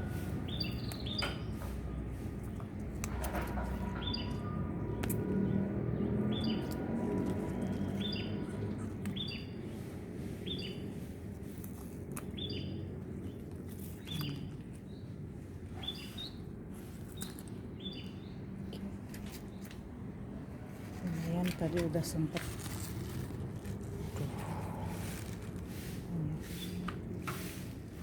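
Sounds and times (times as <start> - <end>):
small bird chirping: 0.5 - 1.6, 4.0 - 6.8, 7.7 - 8.4, 9.1 - 9.8, 12.2 - 15.1, 15.8 - 16.5, 17.1 - 19.8.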